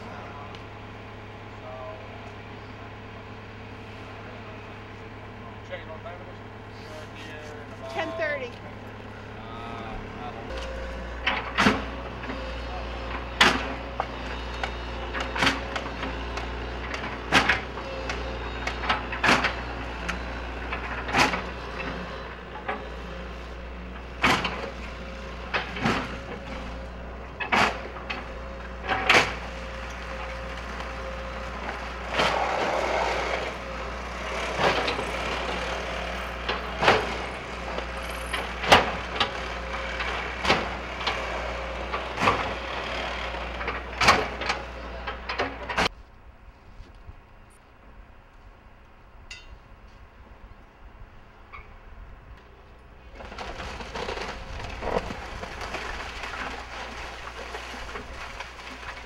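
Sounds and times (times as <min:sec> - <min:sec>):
excavator diesel engine running: 0:00.0 - 0:46.6, 0:50.6 - 0:59.0
timber cracking and breaking: 0:53.1 - 0:59.0.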